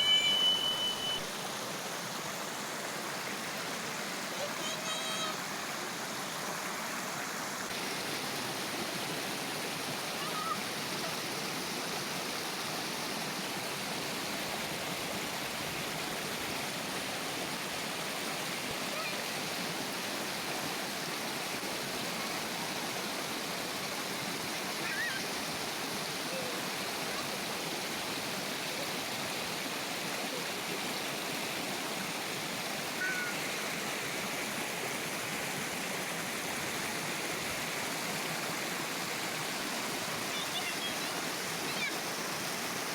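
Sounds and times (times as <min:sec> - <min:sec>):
river water babbling over rocks: 0:00.0 - 0:42.9
distant children's voices: 0:04.2 - 0:05.9, 0:10.1 - 0:11.2, 0:18.7 - 0:19.4, 0:33.0 - 0:33.5, 0:40.1 - 0:42.2.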